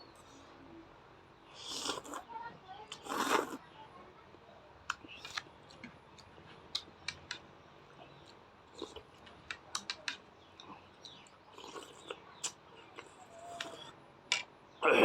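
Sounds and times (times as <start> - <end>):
crisp chewing: 10.6 - 13.9.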